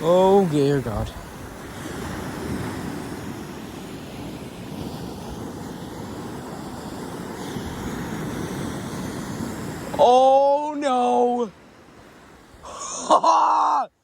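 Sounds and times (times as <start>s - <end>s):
wind noise on microphone: 0.0s - 10.1s
ocean surf rumbling: 0.0s - 14.0s.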